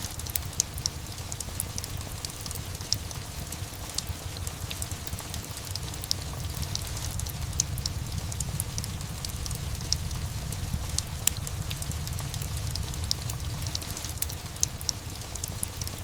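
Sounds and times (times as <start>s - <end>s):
fireplace crackling and popping: 0.0s - 16.0s
steady rain: 0.0s - 16.0s
low rumble: 4.8s - 16.0s.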